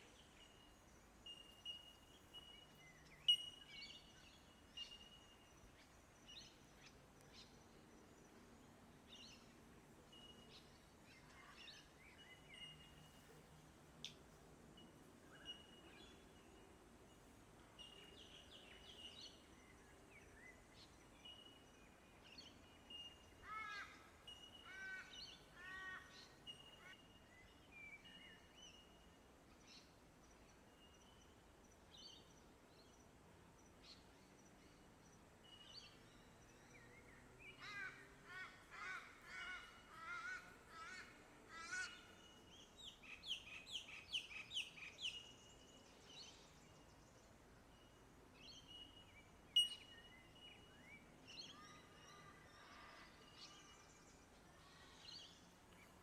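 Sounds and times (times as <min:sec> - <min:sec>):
birds whistling and chirping: 0:03.1 - 0:03.8, 0:48.6 - 0:51.1.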